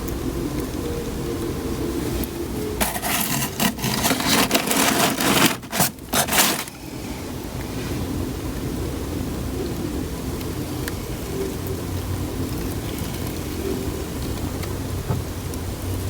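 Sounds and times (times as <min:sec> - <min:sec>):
wood and paper scraping: 0:02.8 - 0:07.2.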